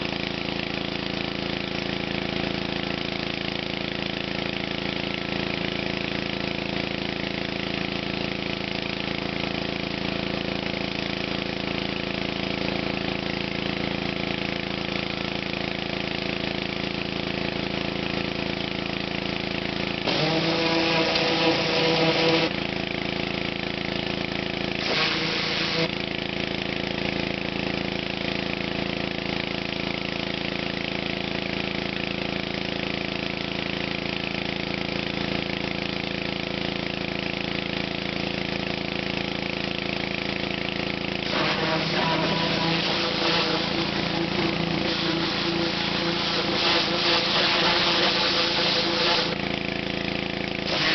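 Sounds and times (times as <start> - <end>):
pressure washer engine running: 0.0 - 50.9
spray hiss: 24.8 - 25.9, 41.3 - 49.4, 50.7 - 50.9.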